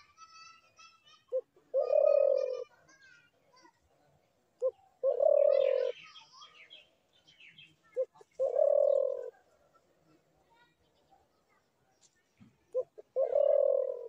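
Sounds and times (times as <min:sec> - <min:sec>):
small birds chirping: 0:00.0 - 0:14.0
dove cooing: 0:01.3 - 0:02.8, 0:04.6 - 0:06.1, 0:08.0 - 0:09.6, 0:12.7 - 0:14.0.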